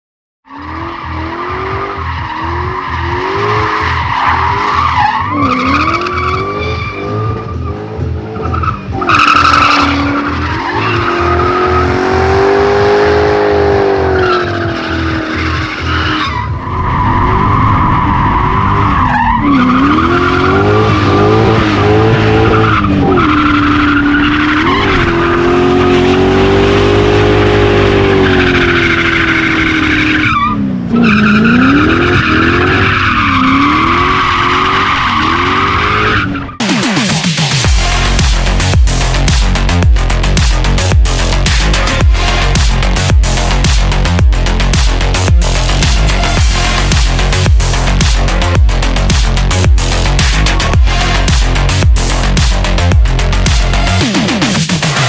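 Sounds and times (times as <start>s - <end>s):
tyres squealing in a burnout: 0.5s - 12.2s, 13.7s - 36.6s
car engine revving: 0.5s - 55.0s.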